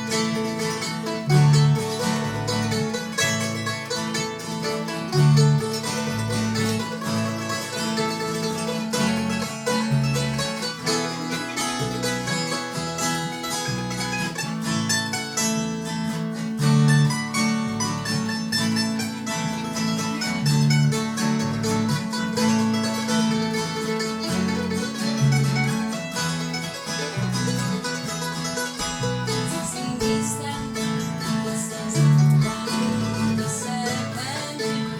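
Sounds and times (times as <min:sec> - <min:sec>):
acoustic string band playing: 0:00.0 - 0:34.9.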